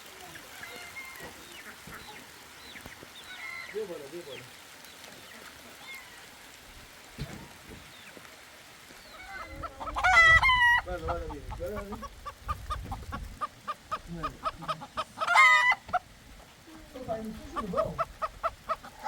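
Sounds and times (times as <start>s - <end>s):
chickens clucking: 0.2s - 6.0s, 9.0s - 19.0s
rooster crowing: 15.2s - 15.8s.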